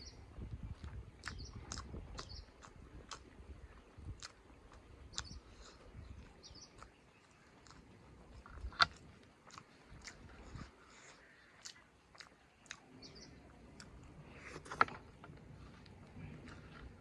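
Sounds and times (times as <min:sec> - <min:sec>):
wet chewing mouth clicks: 0:00.4 - 0:14.1, 0:15.6 - 0:17.0.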